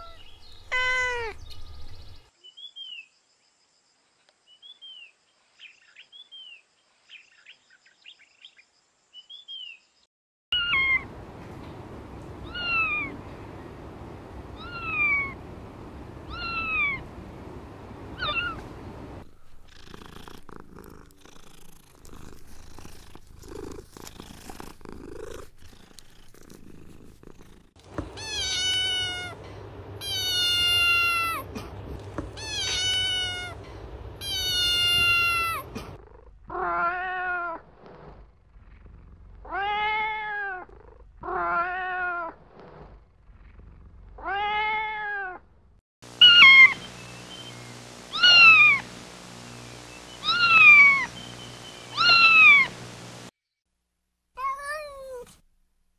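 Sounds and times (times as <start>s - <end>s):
kittens meowing: 0.0s - 1.4s, 10.6s - 11.1s, 12.4s - 13.2s, 14.6s - 15.4s, 16.2s - 17.1s, 18.1s - 18.7s, 28.0s - 35.8s, 46.2s - 46.8s, 48.1s - 48.8s, 50.2s - 51.1s, 51.9s - 52.7s
cat purring: 18.0s - 28.1s, 35.4s - 36.5s, 37.7s - 39.6s, 42.5s - 44.3s.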